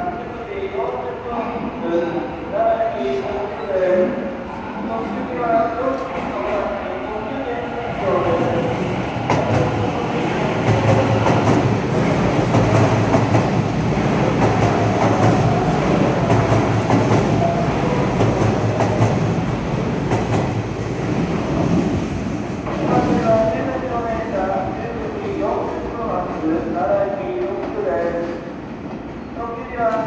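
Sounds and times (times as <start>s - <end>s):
electric train rumbling: 0.0s - 30.0s.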